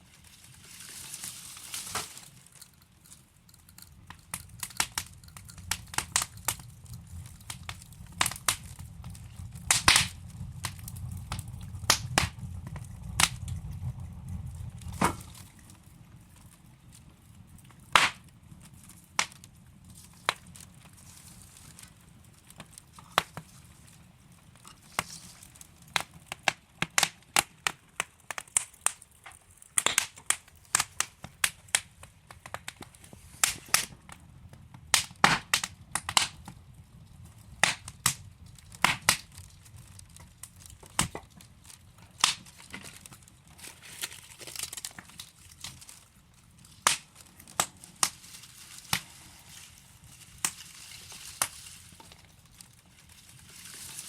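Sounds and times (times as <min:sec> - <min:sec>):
logs crackling and popping: 0:00.0 - 0:54.0
low rumble of flame: 0:00.0 - 0:54.0.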